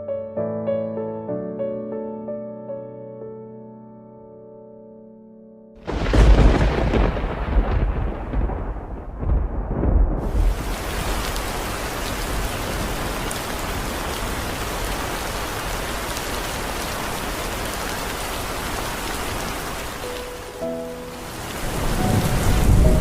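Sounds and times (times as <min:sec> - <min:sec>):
low rumble of thunder: 0:05.8 - 0:14.6, 0:21.5 - 0:23.0
heavy rain falling: 0:05.8 - 0:23.0.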